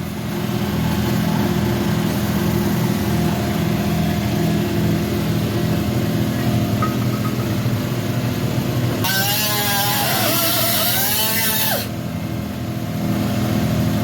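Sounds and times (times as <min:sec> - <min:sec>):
cutoff wheel cutting sheet metal: 0:09.0 - 0:12.0.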